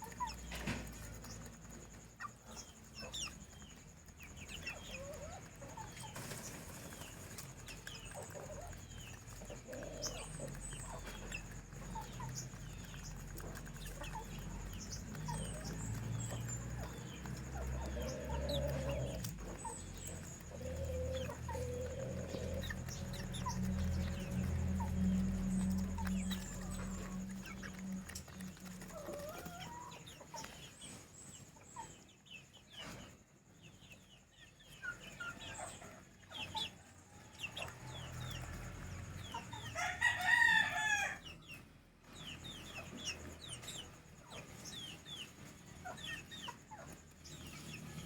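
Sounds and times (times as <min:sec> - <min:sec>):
chickens clucking and peeping: 0:00.0 - 0:48.0
rooster crowing: 0:39.6 - 0:41.4.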